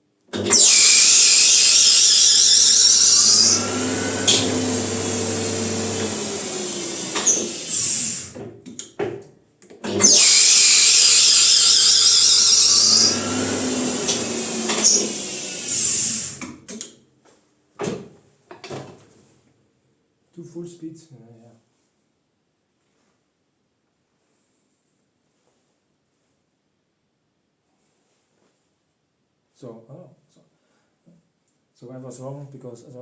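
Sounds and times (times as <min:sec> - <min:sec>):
lathe motor hum: 0:00.4 - 0:08.4, 0:09.9 - 0:16.4
spindle winding down: 0:00.4 - 0:08.4, 0:09.9 - 0:16.5
loud high-pitched hiss: 0:06.7 - 0:08.3.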